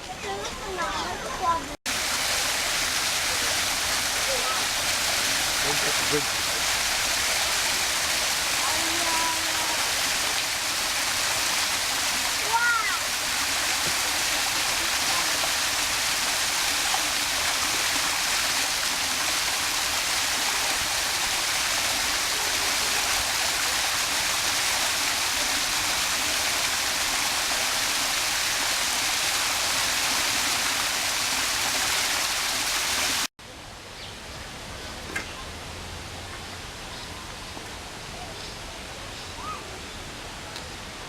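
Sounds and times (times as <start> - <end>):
waterfall rushing: 1.4 - 33.3.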